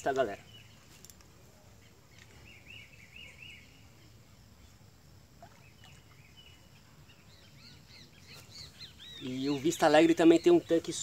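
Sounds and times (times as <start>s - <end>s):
bird chirps: 5.5s - 11.0s.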